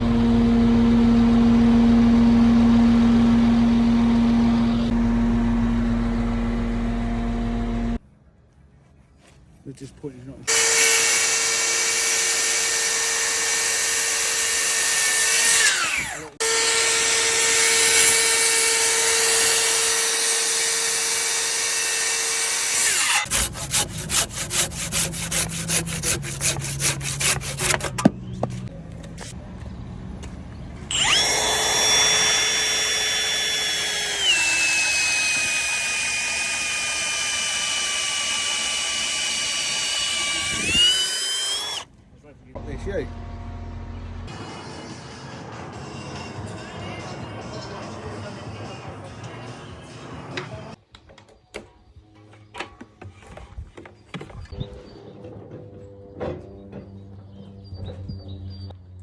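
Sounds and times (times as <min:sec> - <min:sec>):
power drill whining: 0:10.5 - 0:23.3, 0:30.9 - 0:41.9.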